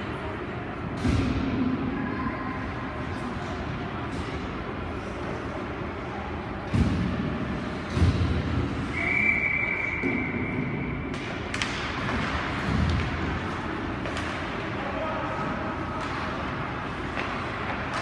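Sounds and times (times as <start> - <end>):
referee's whistle: 8.9 - 11.0.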